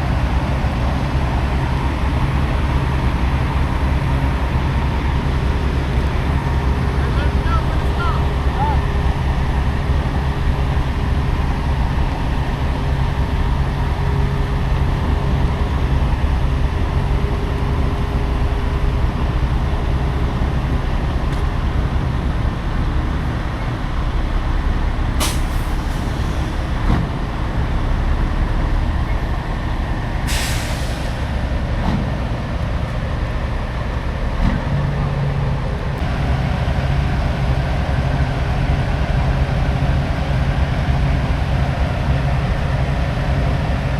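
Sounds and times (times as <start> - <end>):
diesel truck engine rumbling: 0.0 - 43.9
air brake hiss: 25.2 - 26.8, 30.2 - 31.4.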